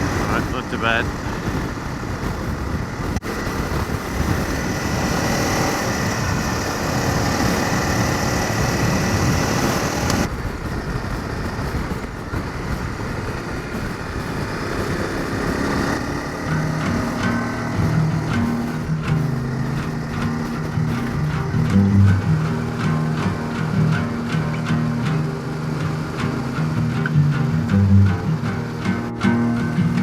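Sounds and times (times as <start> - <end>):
wind rushing: 0.0 - 24.0
motorcycle engine running: 0.0 - 30.0.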